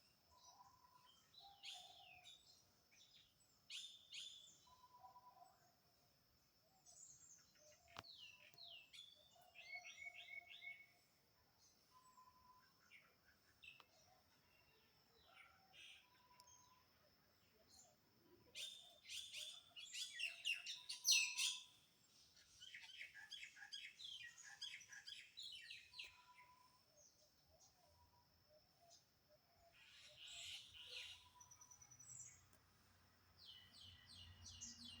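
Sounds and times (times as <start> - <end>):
birds chirping and trilling: 18.6 - 21.8, 29.7 - 32.4, 33.4 - 35.0.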